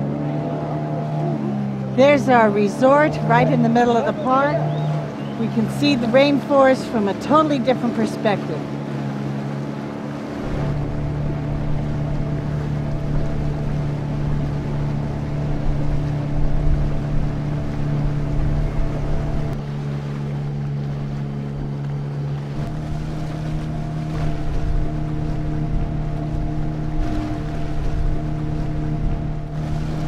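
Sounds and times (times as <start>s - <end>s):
motorboat engine running: 0.0s - 30.0s
water wash: 0.0s - 30.0s
wind noise: 22.5s - 30.0s.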